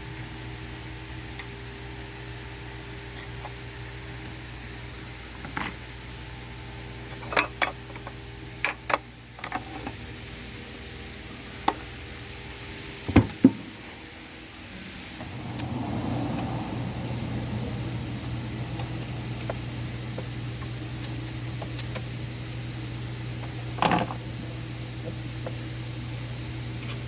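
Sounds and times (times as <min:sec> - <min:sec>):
steady hum: 0:00.0 - 0:27.0
metallic clinks and clanks: 0:07.1 - 0:09.0
loud rumble: 0:13.6 - 0:21.5.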